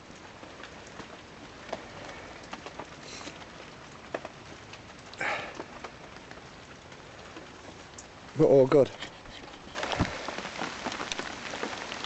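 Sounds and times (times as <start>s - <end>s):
heavy rain on canvas: 0.0s - 12.0s
rustling noise: 8.8s - 12.0s.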